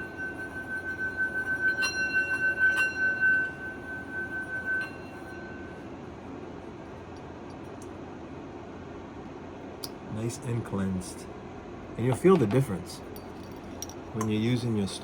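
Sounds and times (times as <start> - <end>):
crystal clinking against metal: 0.0 - 5.8
singing bowl ringing: 0.0 - 6.3.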